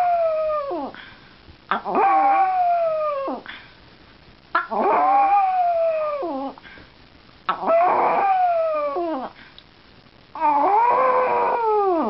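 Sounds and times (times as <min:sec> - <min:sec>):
dog howling: 0:00.0 - 0:00.9, 0:01.7 - 0:03.4, 0:04.6 - 0:06.6, 0:07.5 - 0:09.3, 0:10.4 - 0:12.0.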